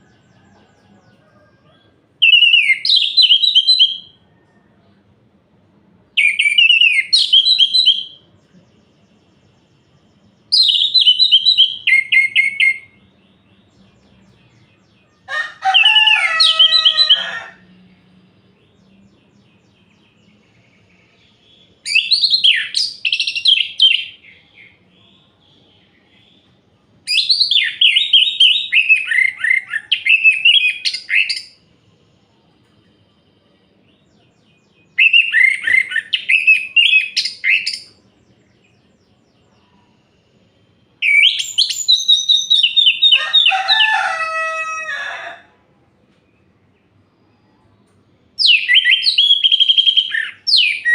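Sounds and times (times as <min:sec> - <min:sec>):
thrush singing whistled notes: 0:02.2 - 0:04.2, 0:06.2 - 0:14.2, 0:18.0 - 0:31.8, 0:34.8 - 0:38.0, 0:40.5 - 0:43.1, 0:48.4 - 0:50.9.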